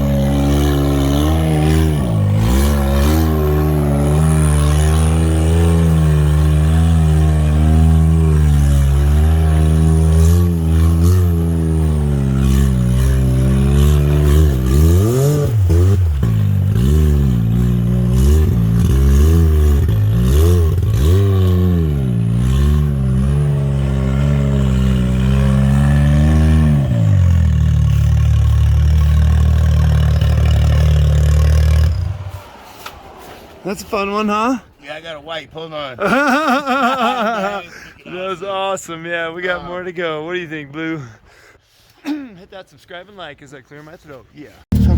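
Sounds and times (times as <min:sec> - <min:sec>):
engine revving: 0:00.0 - 0:34.3.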